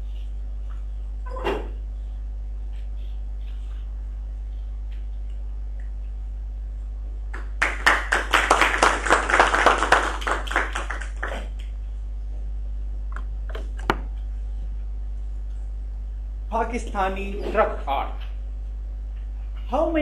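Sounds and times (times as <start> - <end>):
low electrical hum: 0.0 - 20.0
audience clapping: 7.3 - 11.7.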